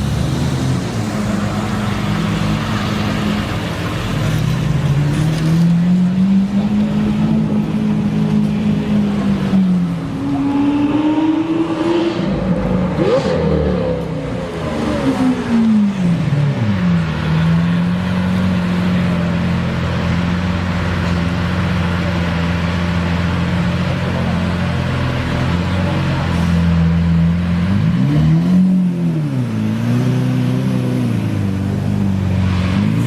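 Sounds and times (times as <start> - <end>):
car engine and exhaust running: 13.8 - 33.0.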